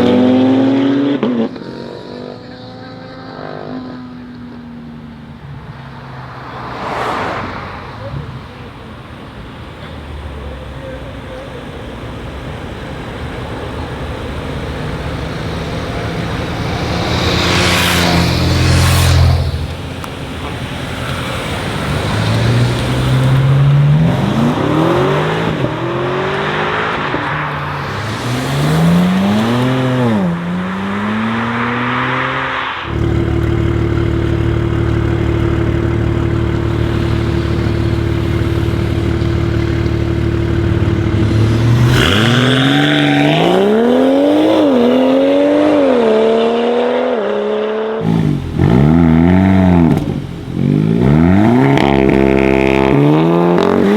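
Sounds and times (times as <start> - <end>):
cars accelerating hard: 0.0 - 53.9
engine idling: 32.9 - 41.9.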